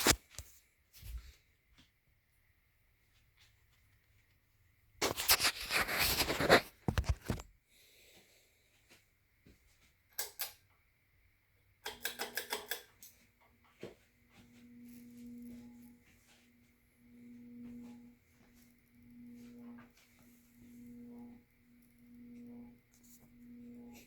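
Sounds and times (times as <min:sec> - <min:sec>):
fan motor low hum: 0:14.1 - 0:24.0.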